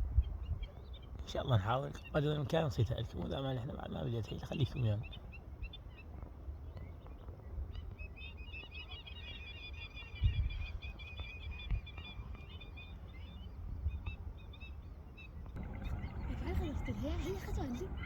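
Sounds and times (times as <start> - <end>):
small birds twittering: 0.0 - 18.0
low rumble: 15.6 - 18.0.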